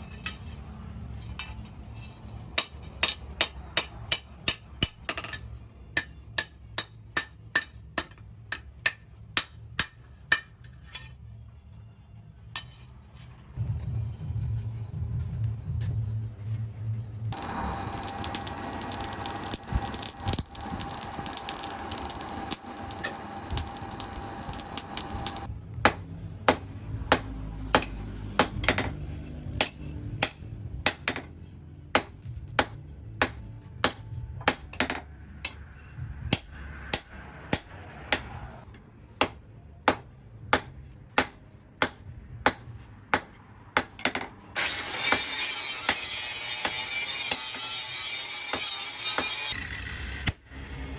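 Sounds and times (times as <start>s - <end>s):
harsh steady machine noise: 17.3s - 25.5s
machine noise with whine: 17.3s - 25.5s.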